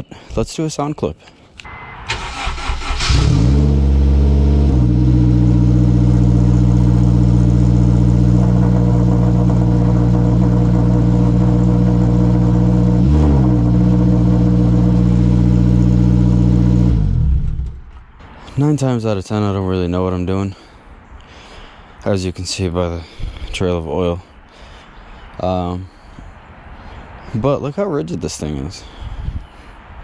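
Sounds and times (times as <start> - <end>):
car engine idling: 1.7 - 18.3.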